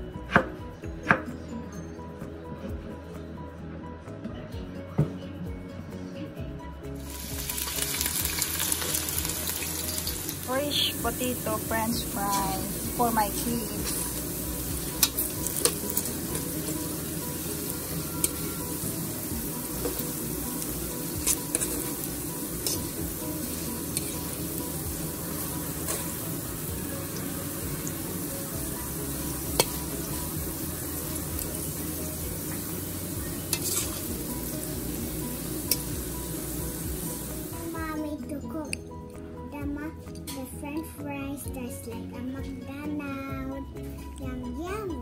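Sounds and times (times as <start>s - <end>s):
fries sizzling in hot oil: 7.0s - 37.8s
metal tongs clicking on pan: 14.9s - 16.8s, 20.6s - 22.0s, 29.5s - 29.8s, 33.5s - 34.0s, 35.7s - 35.9s.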